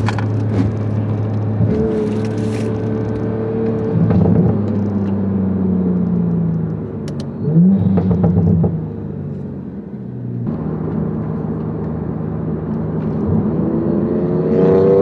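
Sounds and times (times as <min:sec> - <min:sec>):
car engine revving: 0:00.0 - 0:09.1.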